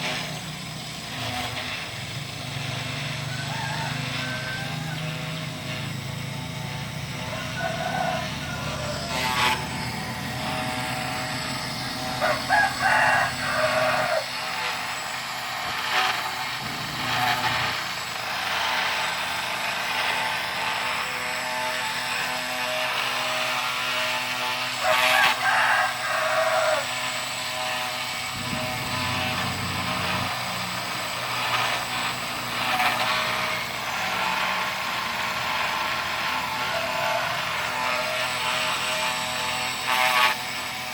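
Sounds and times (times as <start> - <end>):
rooster crowing: 3.2 - 5.5, 7.2 - 10.7, 11.8 - 14.4, 24.8 - 27.0, 36.4 - 38.2
low machine hum: 4.6 - 21.2, 28.2 - 34.6.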